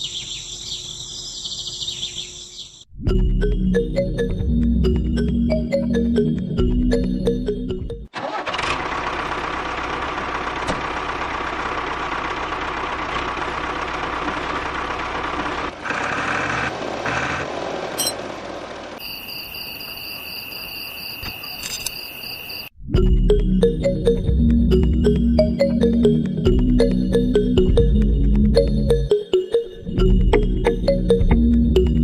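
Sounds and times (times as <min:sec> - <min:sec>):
small tractor engine running: 0:08.2 - 0:19.0.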